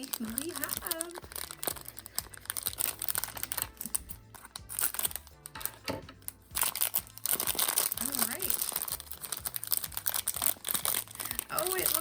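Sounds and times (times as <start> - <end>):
packaging crinkling and clicking: 0.0 - 12.0
quiet background music: 0.0 - 12.0.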